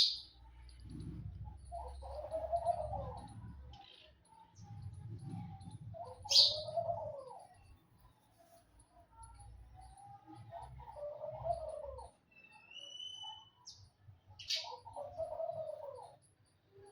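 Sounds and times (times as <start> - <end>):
low wavering bird calls: 1.6 - 7.8, 10.2 - 16.3
sharp high bird chirp: 12.4 - 13.6.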